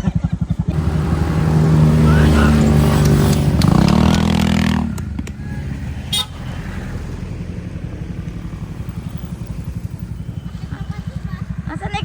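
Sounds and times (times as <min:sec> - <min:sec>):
vehicle engine revving: 0:00.6 - 0:12.0
short horn beep: 0:05.4 - 0:06.4.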